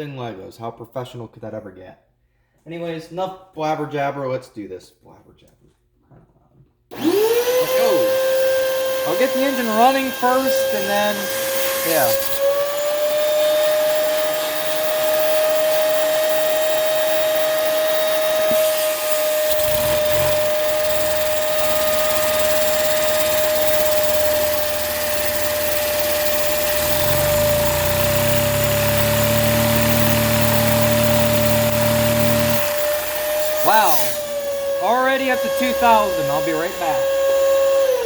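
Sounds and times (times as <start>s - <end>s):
vacuum cleaner whine: 6.9s - 38.0s.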